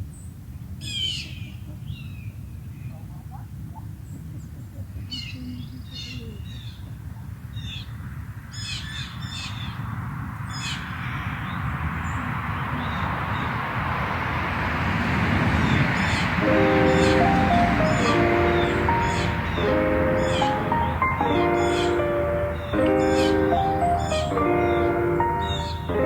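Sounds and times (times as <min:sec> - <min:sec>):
birds chirping: 0:10.5 - 0:26.0.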